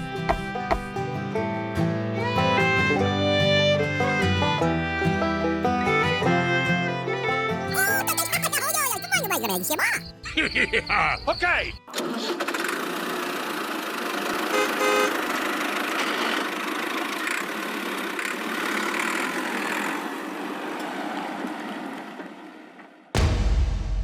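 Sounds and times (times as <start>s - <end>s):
vehicle horn toot: 14.4s - 15.3s.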